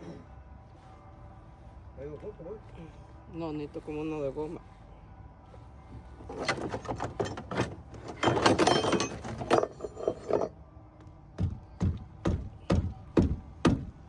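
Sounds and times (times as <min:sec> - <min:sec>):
hand tools and metal parts clattering: 0:06.0 - 0:10.6.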